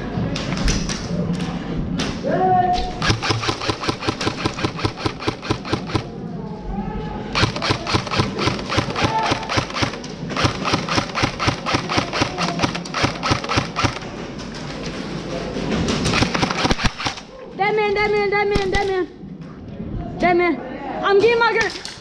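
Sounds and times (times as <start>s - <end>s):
airsoft guns firing full-auto: 3.0s - 6.2s, 7.4s - 14.2s, 16.0s - 17.2s.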